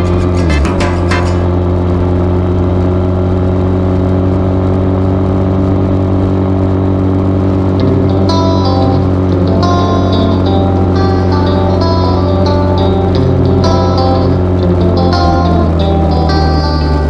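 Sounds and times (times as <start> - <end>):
dirt bike engine running: 0.0 - 2.3.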